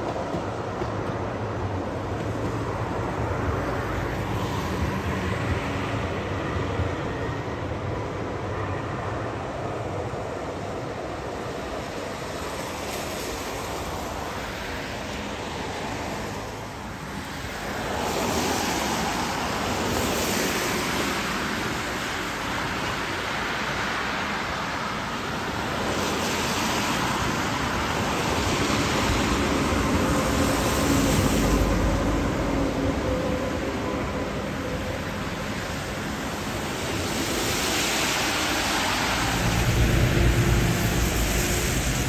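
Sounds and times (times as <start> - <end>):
train wheels rushing: 0.0 - 8.5, 10.2 - 42.0
low rumble of passing train: 0.0 - 42.0.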